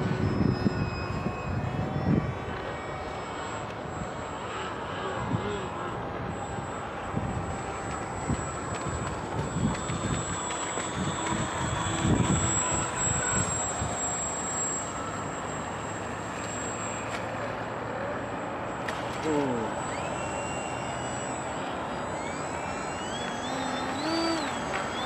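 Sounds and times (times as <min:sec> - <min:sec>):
wind buffeting microphone: 0:00.0 - 0:04.3, 0:05.2 - 0:14.0
electric propeller motor whine: 0:00.0 - 0:25.0.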